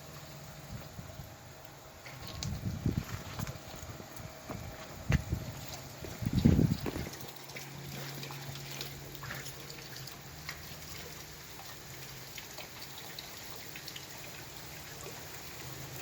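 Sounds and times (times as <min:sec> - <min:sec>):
low steady hum: 0:00.0 - 0:16.0
water dripping and trickling: 0:00.0 - 0:16.0
small drip ticks: 0:03.4 - 0:16.0.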